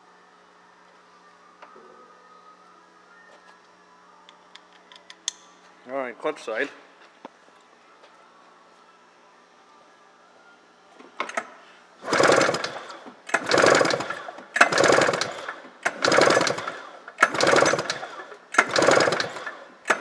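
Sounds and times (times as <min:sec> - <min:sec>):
recoil starter rope pulls: 0:11.3 - 0:20.0.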